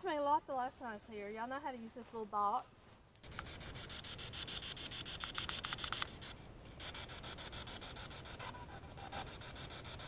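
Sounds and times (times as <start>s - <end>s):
rapid clicks: 3.2s - 8.5s.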